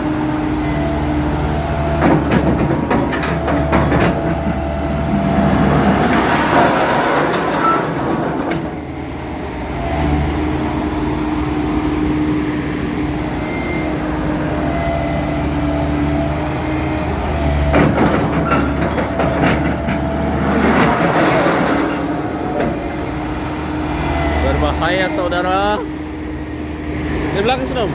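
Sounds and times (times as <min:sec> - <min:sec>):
diesel engine under load: 0:00.0 - 0:27.9
metal clanking: 0:02.0 - 0:08.9, 0:17.6 - 0:23.6.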